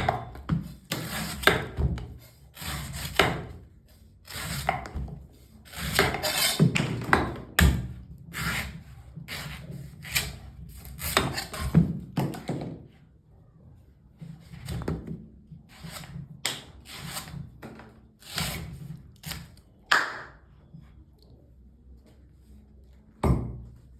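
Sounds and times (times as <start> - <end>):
knife cutting and scraping coconut: 0.0 - 12.0, 15.7 - 19.6.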